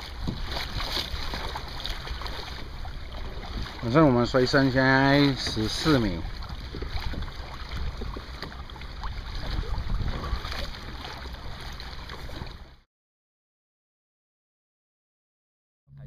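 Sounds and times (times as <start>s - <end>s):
wind buffeting microphone: 0.0s - 11.3s
small knocks and splashes: 0.0s - 12.7s
water sloshing around kayak: 0.0s - 12.9s.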